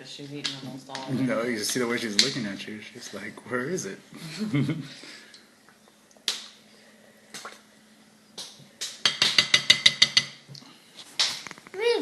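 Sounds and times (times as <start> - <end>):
utensil clinking against dish: 9.0 - 10.4.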